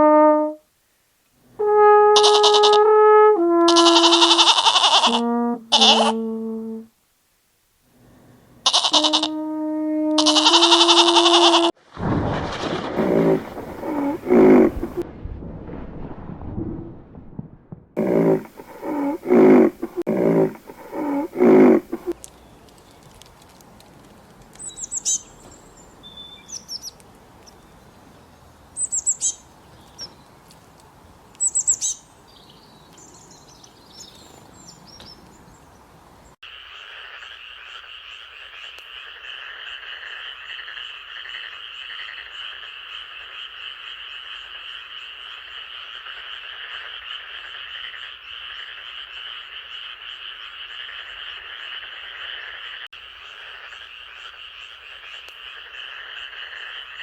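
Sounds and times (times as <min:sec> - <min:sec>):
low hiss: 0:00.0 - 0:11.7
chorus of croaking frogs: 0:12.8 - 0:15.0, 0:36.4 - 0:57.0.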